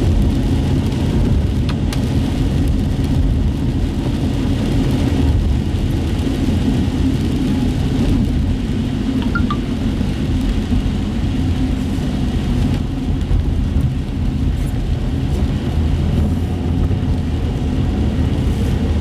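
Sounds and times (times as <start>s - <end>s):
car road noise rumble: 0.0s - 19.0s.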